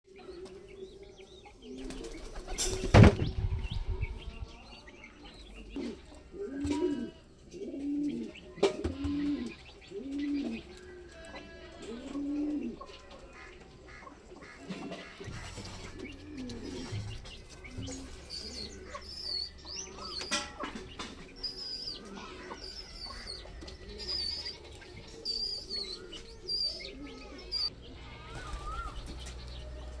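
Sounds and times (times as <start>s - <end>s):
birds chirping: 0.1s - 30.0s
pigeons cooing: 0.1s - 30.0s
wings flapping: 1.8s - 3.9s, 28.3s - 29.9s.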